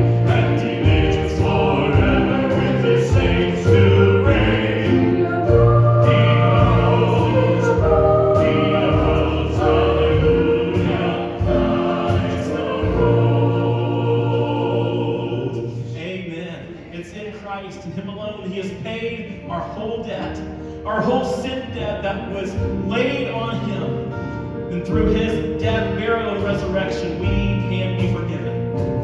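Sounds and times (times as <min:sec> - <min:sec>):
instrumental accompaniment: 0:00.0 - 0:16.0
voices singing a hymn: 0:00.0 - 0:16.3.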